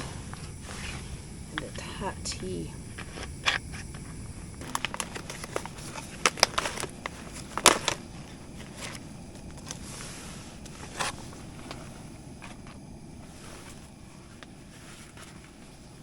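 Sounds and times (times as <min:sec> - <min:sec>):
steady hiss: 0:00.0 - 0:16.0
camp cooking gear clicking: 0:01.5 - 0:09.9, 0:10.5 - 0:13.0.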